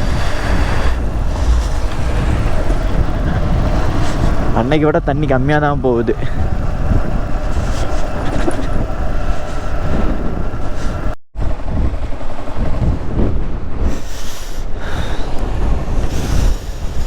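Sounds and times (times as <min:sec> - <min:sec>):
motorcycle engine hum: 0:00.0 - 0:14.1
wind rush on microphone: 0:00.0 - 0:17.0.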